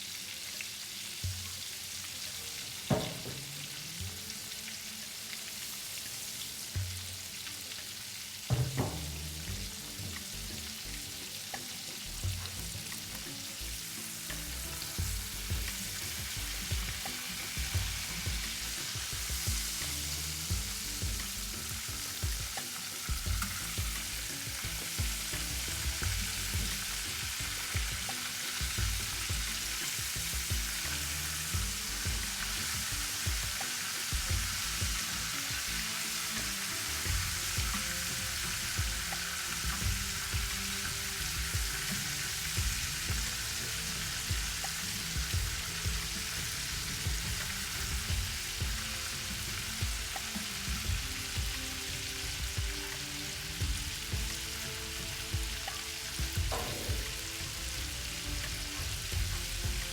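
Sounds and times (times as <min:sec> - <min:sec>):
food sizzling in a pan: 0:00.0 - 0:59.9
sharp knock: 0:08.5 - 0:09.4, 0:56.5 - 0:57.4.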